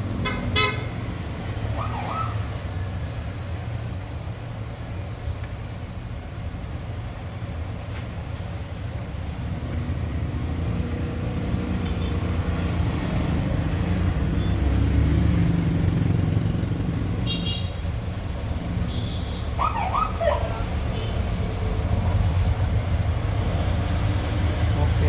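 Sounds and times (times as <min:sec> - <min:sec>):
vehicle passing by: 0:09.5 - 0:17.2, 0:19.6 - 0:25.0.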